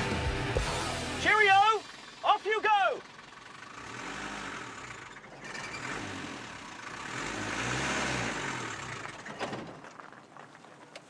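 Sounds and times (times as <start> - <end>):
car engine revving: 3.0 - 9.3.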